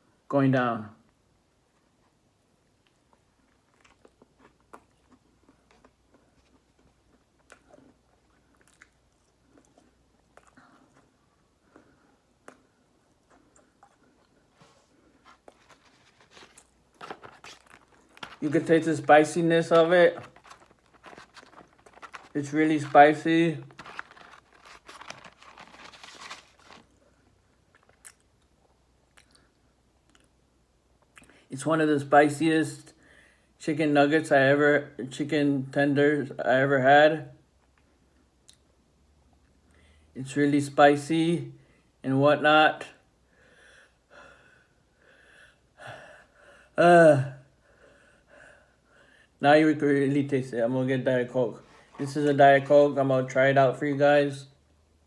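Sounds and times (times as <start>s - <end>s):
person chewing food: 2.8s - 18.5s, 19.8s - 22.9s, 23.6s - 27.0s, 27.6s - 30.4s.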